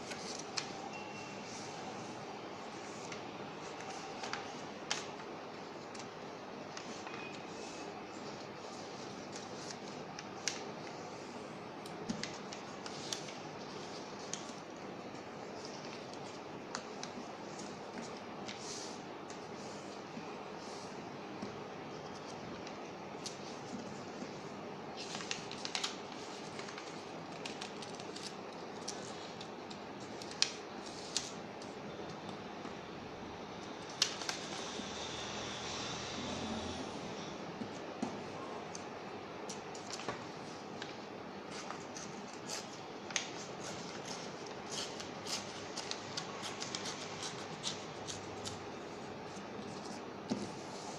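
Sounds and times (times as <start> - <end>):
paper rustling and crinkling: 0.0 - 0.8, 21.9 - 31.8, 37.6 - 50.9.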